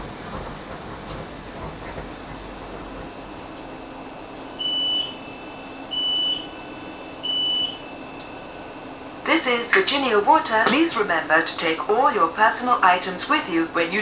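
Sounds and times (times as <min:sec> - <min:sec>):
train running rumble: 0:00.0 - 0:14.0
door warning beeps: 0:04.4 - 0:08.6.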